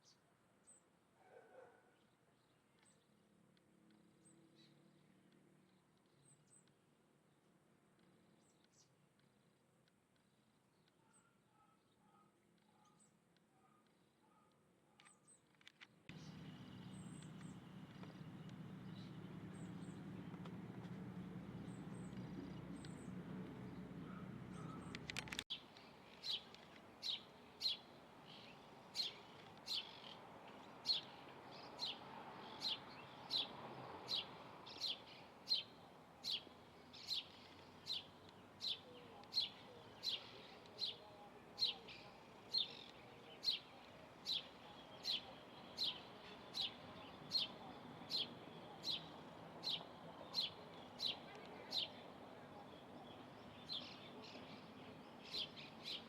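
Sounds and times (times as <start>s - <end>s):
low background rumble: 16.1s - 25.3s.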